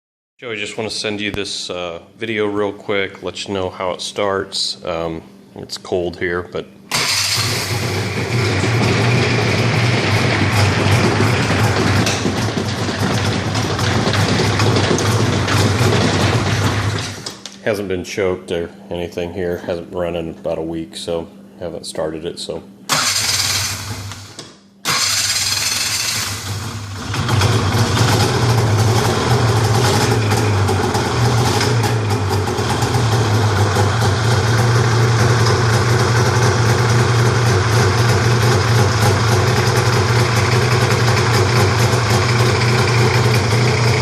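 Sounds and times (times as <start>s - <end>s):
snowmobile engine starting and idling: 6.9s - 17.4s, 22.9s - 44.0s.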